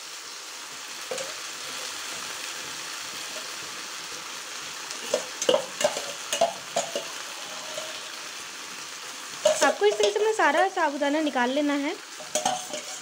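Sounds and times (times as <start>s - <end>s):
food sizzling in an iron pan: 0.0s - 13.0s
metal spoon clinking on steel bowl: 5.0s - 8.0s, 9.4s - 10.3s, 12.2s - 13.0s.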